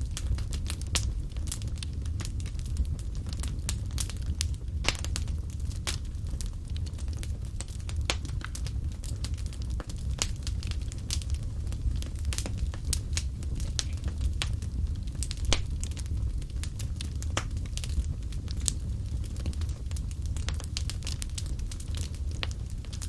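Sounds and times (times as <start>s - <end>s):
low rumble of flames: 0.0s - 23.0s
wood fire crackling and popping: 0.0s - 23.0s.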